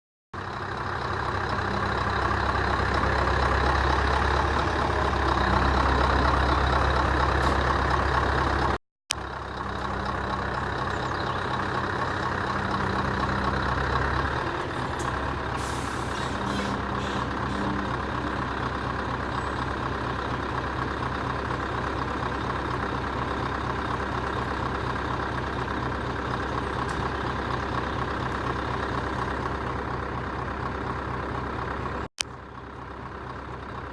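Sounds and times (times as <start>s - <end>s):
lorry diesel engine running: 0.4s - 33.9s.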